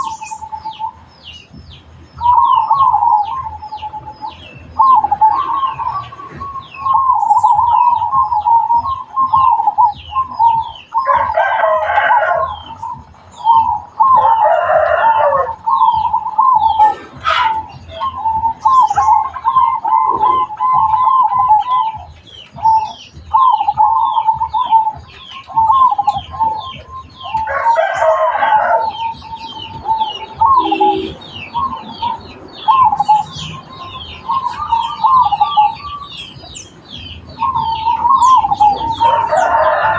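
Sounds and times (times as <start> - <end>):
doves cooing: 0.0 - 39.9
small birds chirping: 0.0 - 39.9
rooster crowing: 11.0 - 12.9, 14.0 - 15.8, 27.4 - 29.4, 38.6 - 39.9.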